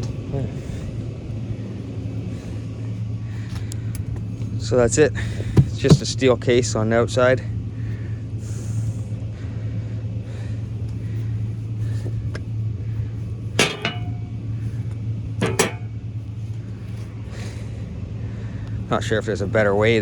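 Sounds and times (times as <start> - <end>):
steady low hum: 0.0 - 20.0
hammer striking chisel on metal: 13.6 - 14.3, 15.4 - 15.9.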